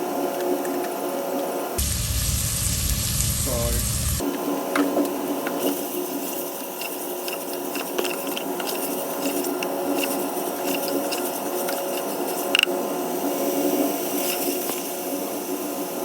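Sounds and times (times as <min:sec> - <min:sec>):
chicken sizzling in oil: 0:01.8 - 0:04.3, 0:11.9 - 0:16.0.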